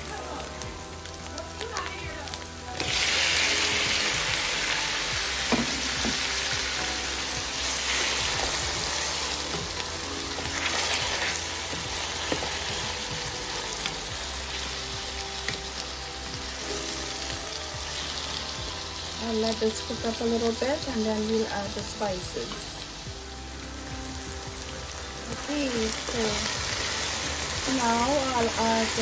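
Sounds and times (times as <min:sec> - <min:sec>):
tomatoes sizzling in oil: 0:00.0 - 0:29.0.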